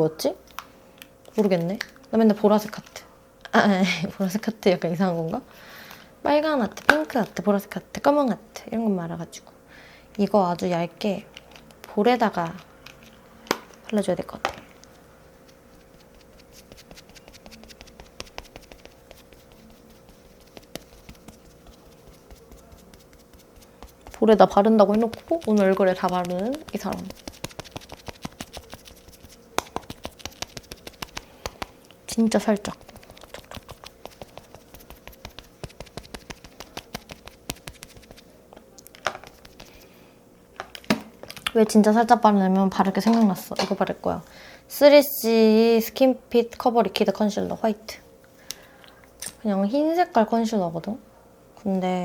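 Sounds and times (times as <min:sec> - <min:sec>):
faint steady hum: 0:00.0 - 0:52.0
makeup puff dabbing face: 0:15.3 - 0:38.3, 0:39.2 - 0:39.8.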